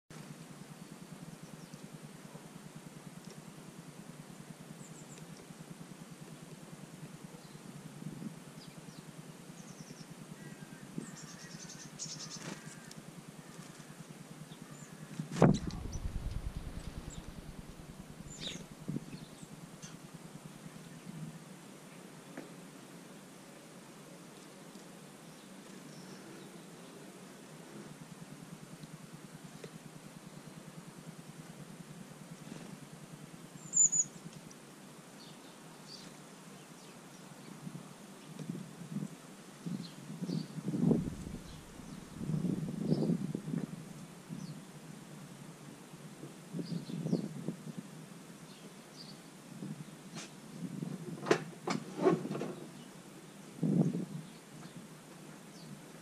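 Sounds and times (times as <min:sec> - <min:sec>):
faint low hum: 0:00.2 - 0:51.1
small birds chirping: 0:08.5 - 0:21.2, 0:33.6 - 0:34.3, 0:39.7 - 0:43.2
low rumble: 0:15.4 - 0:19.8, 0:40.7 - 0:42.8
high bird chirps: 0:15.5 - 0:20.0.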